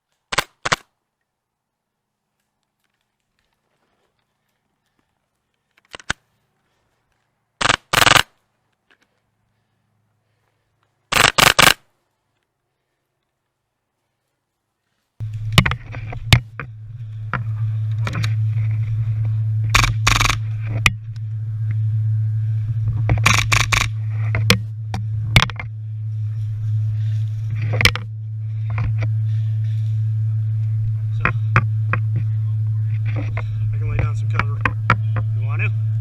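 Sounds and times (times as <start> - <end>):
sharp clicks: 0.3 - 0.9, 5.8 - 6.2, 7.6 - 9.0, 11.1 - 11.8, 15.2 - 21.8, 23.0 - 25.8
steady low hum: 6.3 - 36.0
rustling bursts: 10.3 - 13.0.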